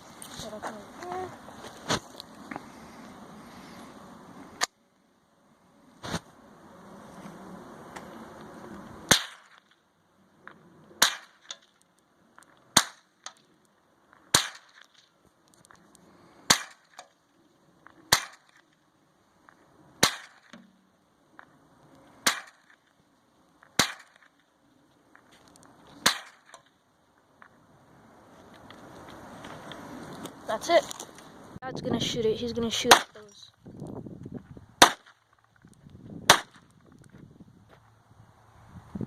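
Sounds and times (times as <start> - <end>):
rifle shots: 9.1 - 9.6, 11.0 - 11.5, 12.7 - 13.1, 14.3 - 14.9, 16.5 - 17.0, 18.1 - 18.5, 20.0 - 20.6, 22.2 - 22.8, 23.8 - 24.3, 36.3 - 36.6.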